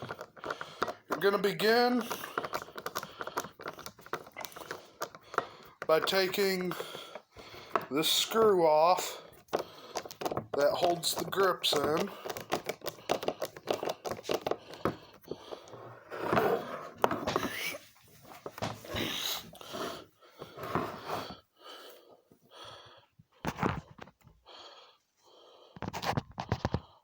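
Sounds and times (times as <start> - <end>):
screwdriver clicking and scraping: 0.0 - 17.8
short breaths: 0.1 - 7.9.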